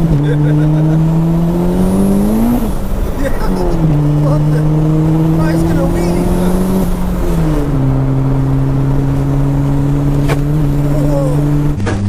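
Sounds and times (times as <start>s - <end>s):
car engine revving hard: 0.0s - 12.0s.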